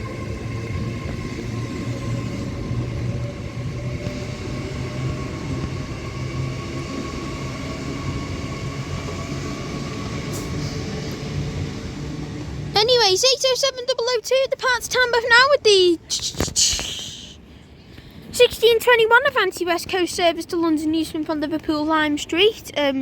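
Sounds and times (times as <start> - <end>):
electric train humming: 0.0 - 15.4.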